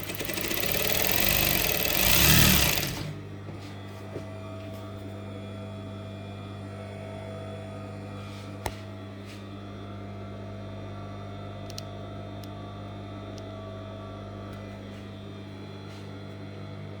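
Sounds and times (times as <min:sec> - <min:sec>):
sewing machine motor humming: 0:00.0 - 0:03.3.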